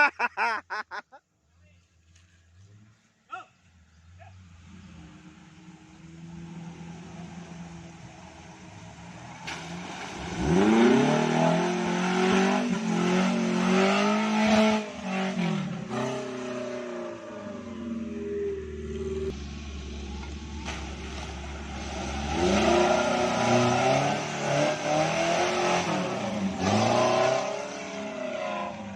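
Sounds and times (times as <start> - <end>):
car engine revving: 4.0 - 28.9.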